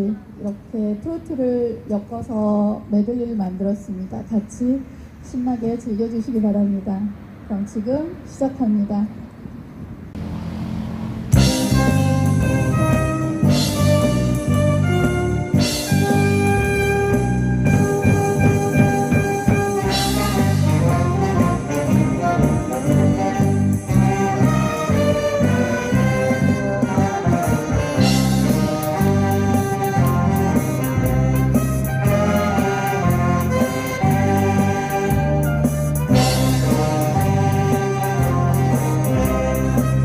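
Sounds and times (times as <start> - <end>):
bass: 10.1 - 40.0
horn-like lead melody: 10.9 - 40.0
drums: 11.1 - 40.0.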